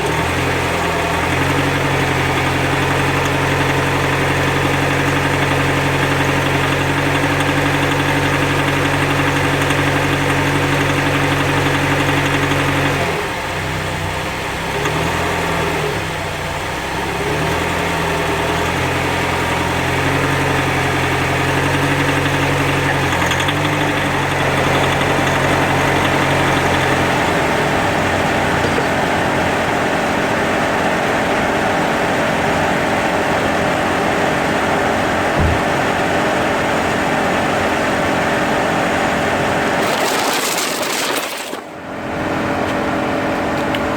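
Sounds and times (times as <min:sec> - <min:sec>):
car engine low drone: 0:13.2 - 0:39.8.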